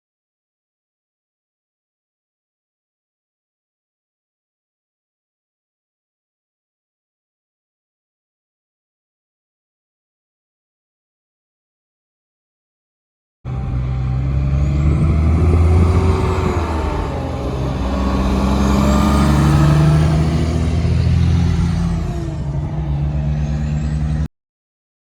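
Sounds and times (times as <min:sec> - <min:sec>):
truck diesel engine passing: 0:13.5 - 0:24.3.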